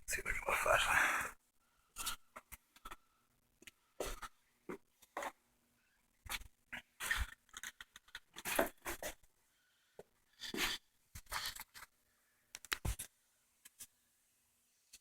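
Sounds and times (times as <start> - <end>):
rustling and scraping: 10.4 - 12.0.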